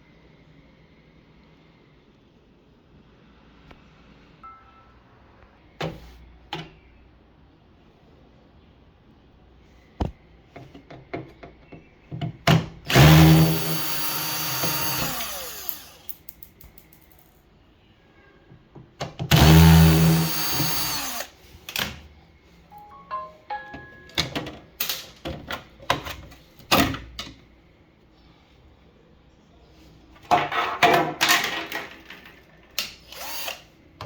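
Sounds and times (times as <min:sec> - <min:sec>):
parts clicking and knocking: 0:10.0 - 0:17.4
power drill running: 0:12.9 - 0:16.1, 0:19.3 - 0:21.4, 0:33.0 - 0:33.7.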